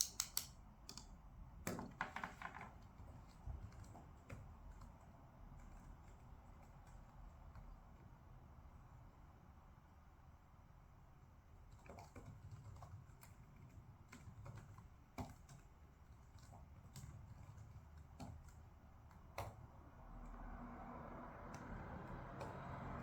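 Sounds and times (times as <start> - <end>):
desk work clicks and taps: 0.0 - 5.0.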